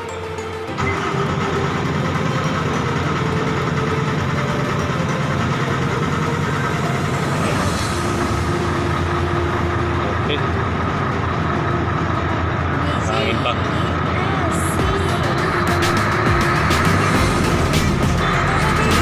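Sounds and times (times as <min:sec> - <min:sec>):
truck diesel engine idling: 0:00.0 - 0:19.0.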